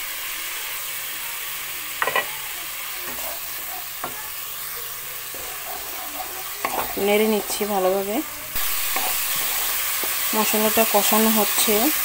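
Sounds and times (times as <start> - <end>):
paste sizzling in oil: 0.0 - 12.0
wooden spatula strokes: 5.2 - 7.6, 8.6 - 10.1.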